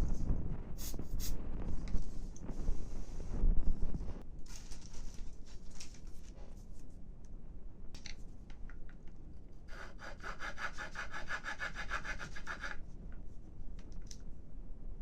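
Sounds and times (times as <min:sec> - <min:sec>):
hand tool rasping wooden stick: 0:09.7 - 0:12.8.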